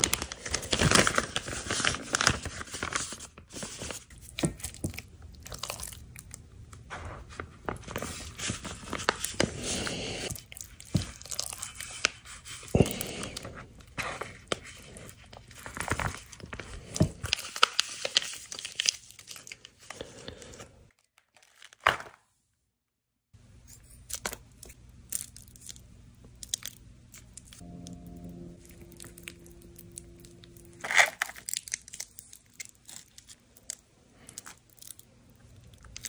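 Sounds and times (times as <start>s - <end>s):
person crunching and chewing food: 4.1s - 6.5s, 8.2s - 20.6s, 24.0s - 36.0s.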